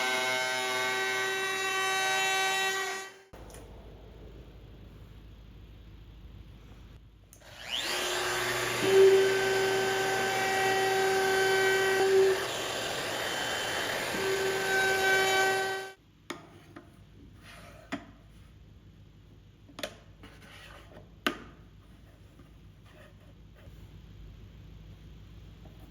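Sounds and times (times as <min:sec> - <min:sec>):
power tool cutting wood: 0:00.0 - 0:03.2, 0:07.4 - 0:16.0.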